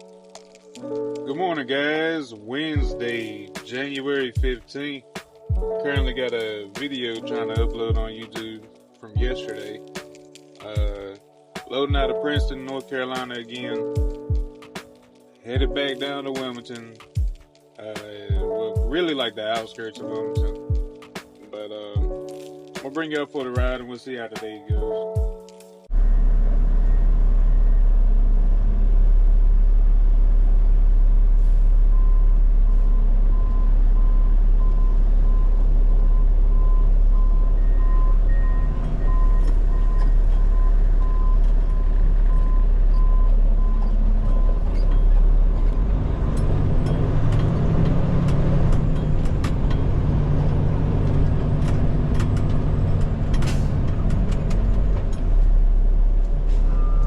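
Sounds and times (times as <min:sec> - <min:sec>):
diesel truck engine rumbling: 0:25.9 - 0:57.0
backup alarm beeping: 0:31.8 - 0:46.0.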